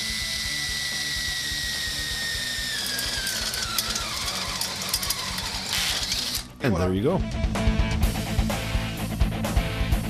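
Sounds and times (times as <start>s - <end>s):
drill bit cutting metal: 0.0s - 6.6s
power drill motor whine: 0.0s - 6.6s.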